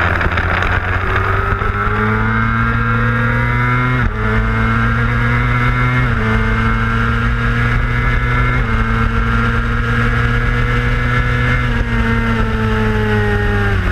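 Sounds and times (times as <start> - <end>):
motorcycle engine shifting up: 0.0 - 11.0.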